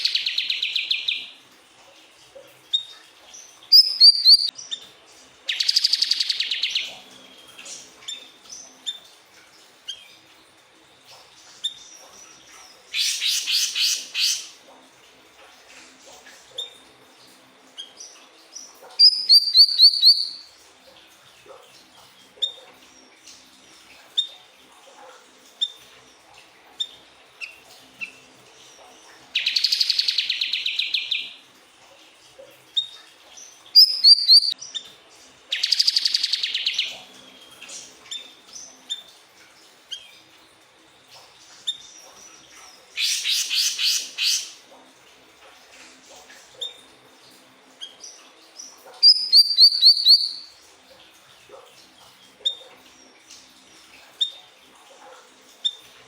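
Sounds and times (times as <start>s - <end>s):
bird chirps and buzzy trills: 2.7s - 14.6s, 17.7s - 20.6s, 26.8s - 31.4s, 32.7s - 34.9s, 35.5s - 39.1s, 41.2s - 44.7s, 46.6s - 50.6s.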